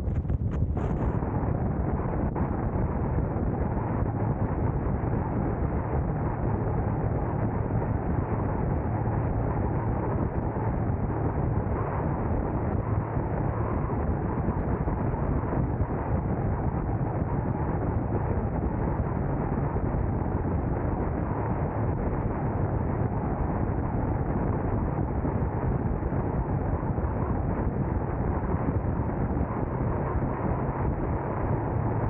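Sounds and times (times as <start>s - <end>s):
car driving rumble: 0.0s - 1.5s
wind noise on microphone: 0.0s - 32.0s.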